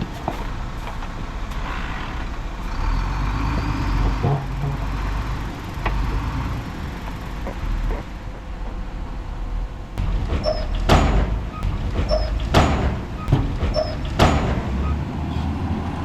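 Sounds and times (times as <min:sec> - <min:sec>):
diesel machinery rumbling: 0:00.0 - 0:16.0
sharp knocks: 0:10.0 - 0:15.0.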